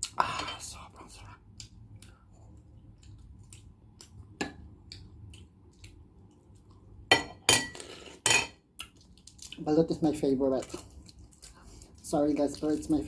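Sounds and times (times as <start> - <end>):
chewing with wet mouth clicks: 1.5 - 6.9, 8.7 - 9.7, 10.6 - 12.8.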